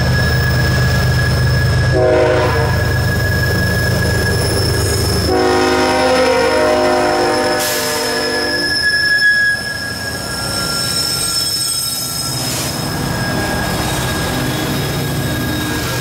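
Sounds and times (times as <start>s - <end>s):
high-pitched wheel squeal: 0.0s - 16.0s
passing train rumble: 0.0s - 16.0s
locomotive air horn: 1.9s - 2.9s, 5.2s - 8.8s.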